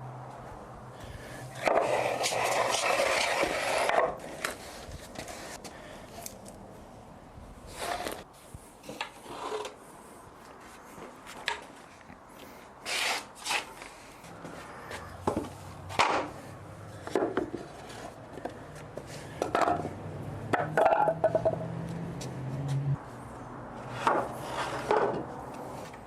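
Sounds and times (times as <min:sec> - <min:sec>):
wooden boards knocking and scraping: 0:15.2 - 0:16.3, 0:17.0 - 0:21.7, 0:24.0 - 0:25.3.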